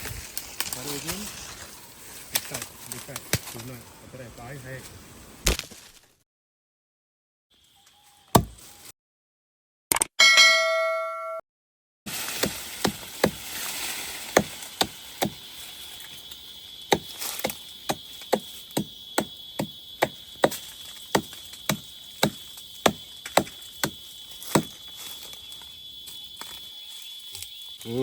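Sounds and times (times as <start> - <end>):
wood chopping strikes: 5.4 - 6.1, 8.3 - 8.7, 12.3 - 13.5, 14.3 - 15.4, 16.9 - 24.8.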